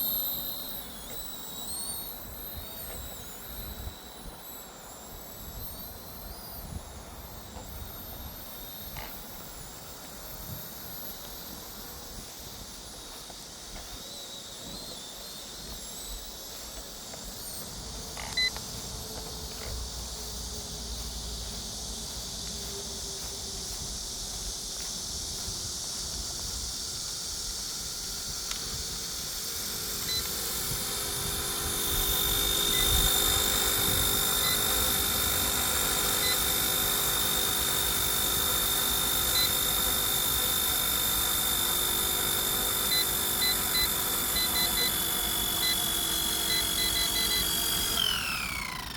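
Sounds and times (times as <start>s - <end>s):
electric motor whining: 0.0s - 48.9s
short electronic beeps: 14.0s - 18.6s, 29.3s - 48.2s.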